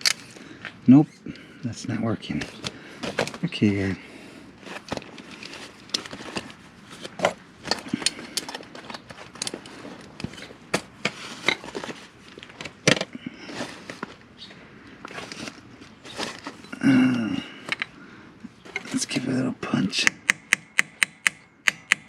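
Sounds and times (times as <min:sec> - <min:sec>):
hand tools tapping on metal: 0:17.6 - 0:18.0.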